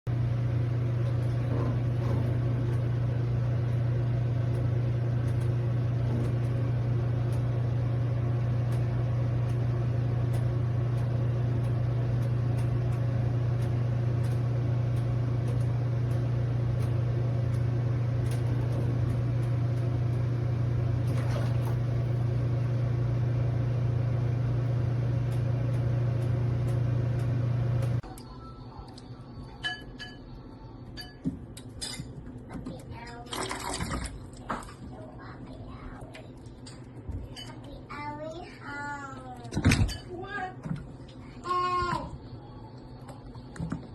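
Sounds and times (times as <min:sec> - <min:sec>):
low-pitched hum: 0:00.1 - 0:32.8.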